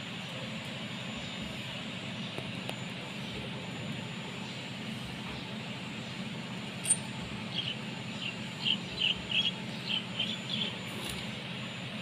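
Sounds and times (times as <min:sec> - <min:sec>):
small bird chirping: 0:06.8 - 0:10.8.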